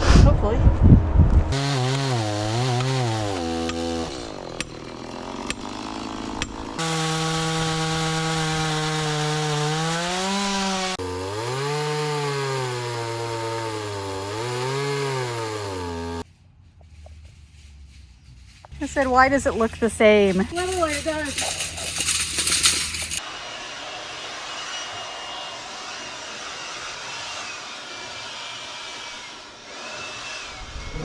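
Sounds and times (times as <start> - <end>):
chainsaw cutting wood: 1.5 - 16.3, 24.3 - 30.6.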